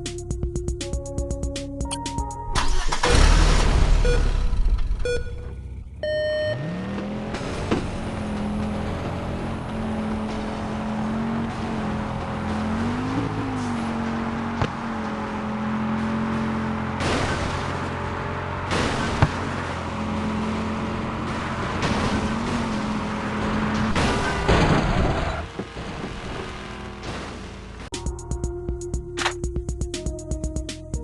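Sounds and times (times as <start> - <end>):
electronic music notes: 0.0 - 2.6, 27.9 - 31.0
car engine revving: 2.6 - 27.9.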